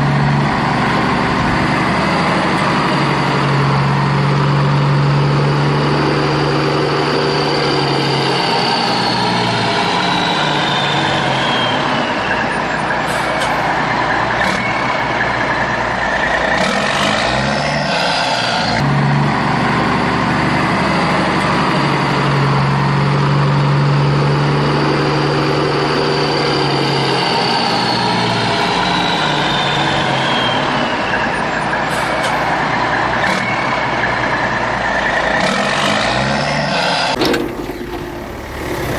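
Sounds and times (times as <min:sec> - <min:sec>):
heavy vehicle engine running: 0:00.0 - 0:38.9
high engine whine: 0:00.0 - 0:38.9
clicks: 0:37.1 - 0:38.5.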